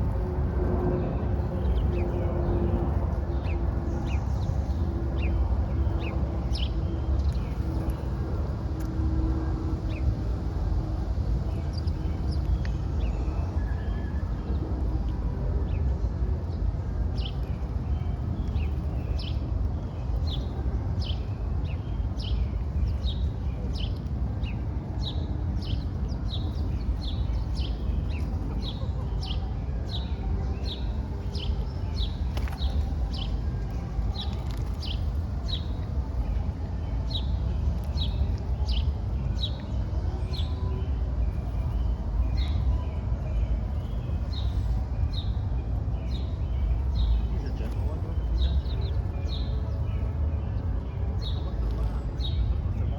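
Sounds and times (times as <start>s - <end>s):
low background rumble: 0.0s - 52.9s.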